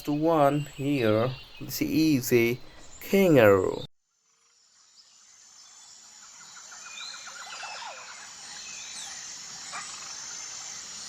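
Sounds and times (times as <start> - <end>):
bird calls: 0.0 - 3.9, 6.2 - 11.0
insect buzz: 1.4 - 11.0.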